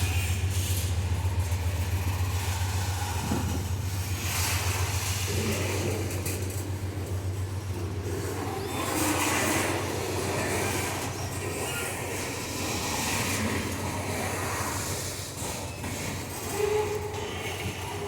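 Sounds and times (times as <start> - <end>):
steady low drone: 0.0 - 8.9
train rail rumble: 0.0 - 18.0
faint wheel squeals: 8.2 - 18.0.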